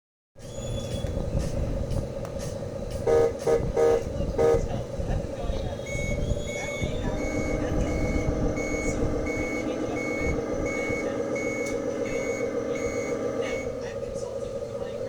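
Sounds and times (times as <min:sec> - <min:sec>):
diesel engine hum: 0:00.4 - 0:15.0
reversing beeper: 0:05.7 - 0:15.0.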